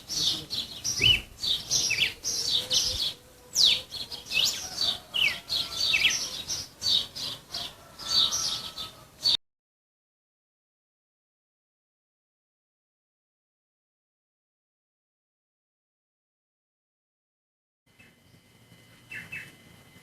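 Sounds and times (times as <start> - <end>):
songbird singing: 0.0 - 9.4, 17.9 - 20.0.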